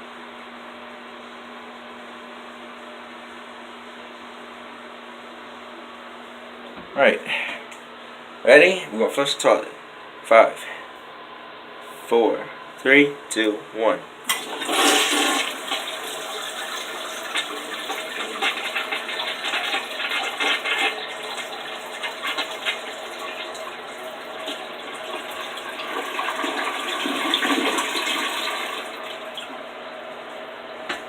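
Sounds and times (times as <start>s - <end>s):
toilet flushing: 14.3s - 29.8s.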